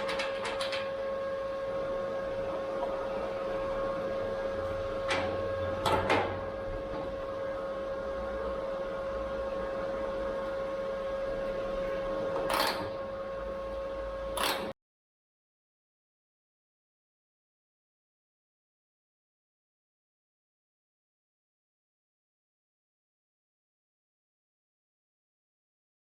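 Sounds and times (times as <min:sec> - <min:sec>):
steady machine hum: 0:00.0 - 0:14.8.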